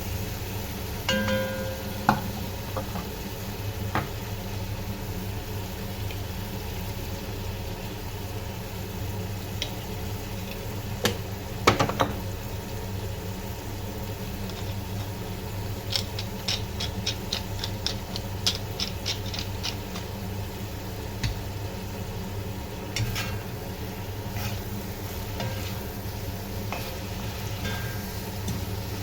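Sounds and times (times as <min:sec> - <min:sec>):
low background hum: 0:00.0 - 0:29.0
utensils clinking on cookware: 0:01.1 - 0:02.4, 0:23.0 - 0:23.6, 0:26.7 - 0:28.6.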